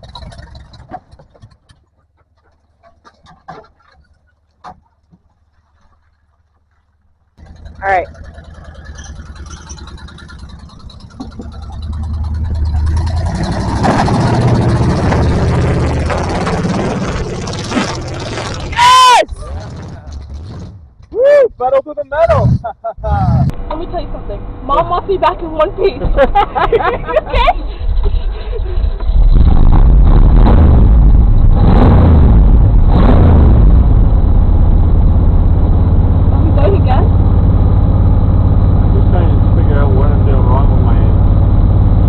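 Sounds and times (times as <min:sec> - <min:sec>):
off-road engine under hard throttle: 0:00.0 - 0:42.0
engine revving hard: 0:07.4 - 0:20.8, 0:29.1 - 0:34.5.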